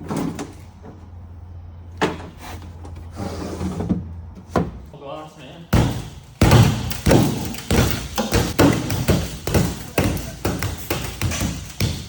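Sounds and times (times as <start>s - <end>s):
heavy thumps and knocks: 5.8s - 12.0s.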